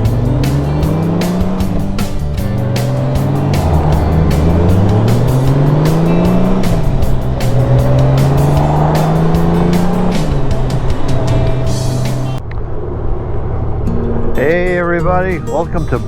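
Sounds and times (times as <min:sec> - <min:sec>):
music with a beat: 0:00.0 - 0:12.4
motorcycle engine accelerating: 0:00.0 - 0:14.6.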